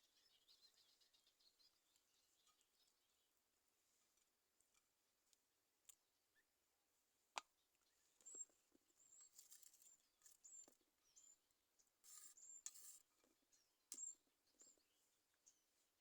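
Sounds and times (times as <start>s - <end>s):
faint sharp clicks: 13.9s - 14.7s.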